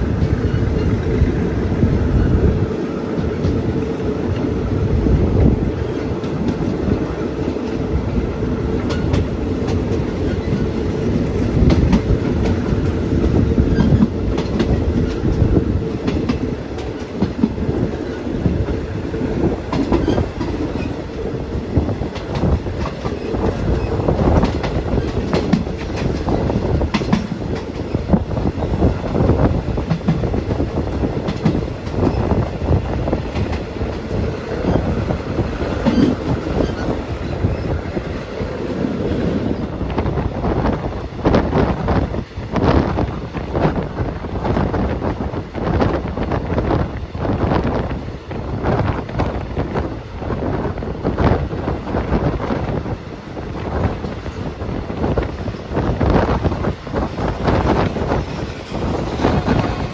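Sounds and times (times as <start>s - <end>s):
train rumble: 0.0s - 59.9s
wheels clattering over rail joints: 19.7s - 38.2s, 55.4s - 59.9s.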